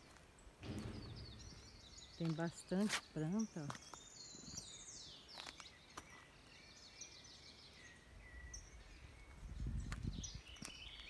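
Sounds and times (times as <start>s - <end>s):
small birds chirping: 0.0s - 11.0s
low rumble: 0.6s - 2.4s.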